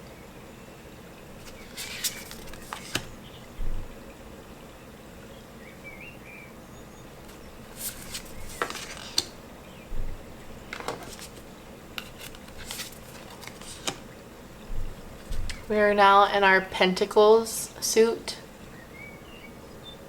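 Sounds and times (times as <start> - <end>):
cards sliding swishes: 1.4 - 3.1, 7.7 - 9.3, 10.9 - 14.0
card clicks and taps: 7.8 - 9.3.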